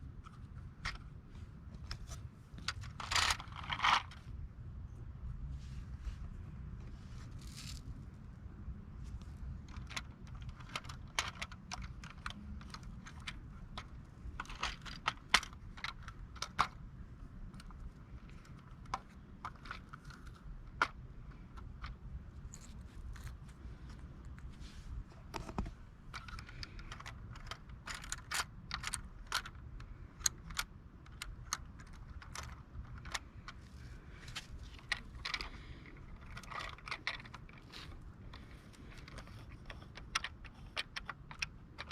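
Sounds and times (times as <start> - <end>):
toy truck clicking and rattling: 2.6 - 4.3, 9.6 - 23.3, 26.1 - 41.9.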